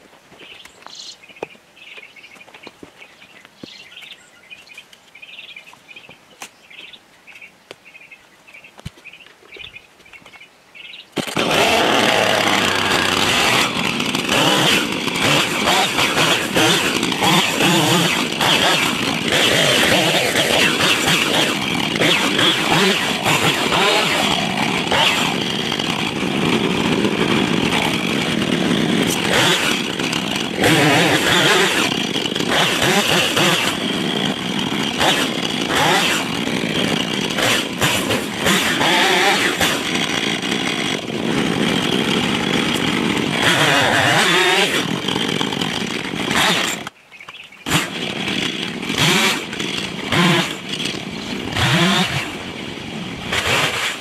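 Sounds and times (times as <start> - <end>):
chainsaw cutting wood: 11.1 - 54.0.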